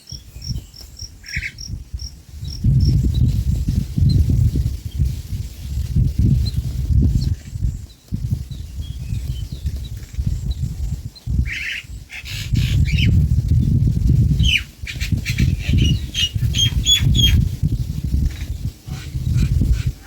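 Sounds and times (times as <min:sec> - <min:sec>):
small bird chirping: 0:00.0 - 0:03.3, 0:06.4 - 0:13.2, 0:14.2 - 0:18.5.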